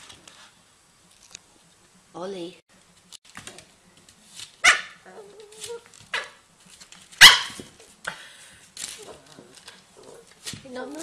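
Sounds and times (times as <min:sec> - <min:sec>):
puppy barking: 0:04.6 - 0:05.3, 0:06.1 - 0:06.4, 0:07.2 - 0:07.6.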